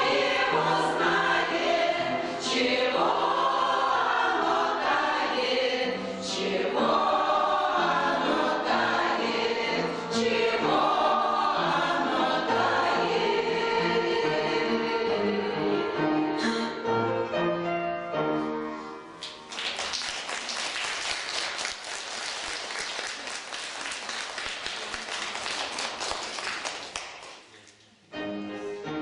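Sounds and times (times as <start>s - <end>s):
choir singing: 0.0s - 16.2s.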